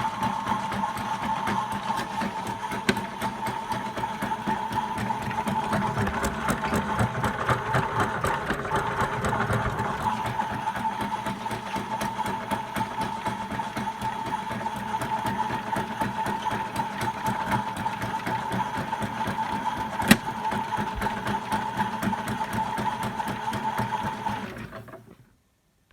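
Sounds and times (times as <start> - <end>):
sharp click: 20.0 - 20.3.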